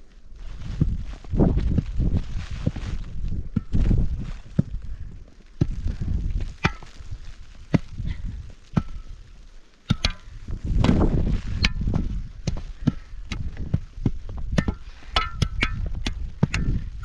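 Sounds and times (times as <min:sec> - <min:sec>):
rumbling: 0:00.4 - 0:17.0.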